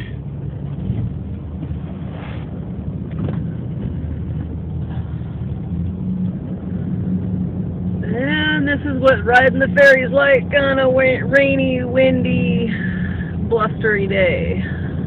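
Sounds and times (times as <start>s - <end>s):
ferry engines droning: 0.0s - 15.0s.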